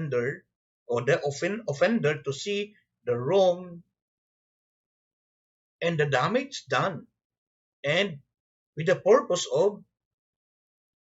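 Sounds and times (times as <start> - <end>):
man talking: 0.0 - 3.9, 5.8 - 7.1, 7.8 - 9.9.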